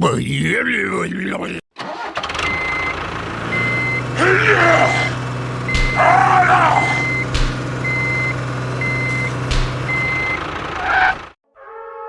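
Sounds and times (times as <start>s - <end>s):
low engine hum: 2.4s - 11.3s
reversing alarm beeping: 2.4s - 11.3s
sharp knocks: 5.7s - 11.2s.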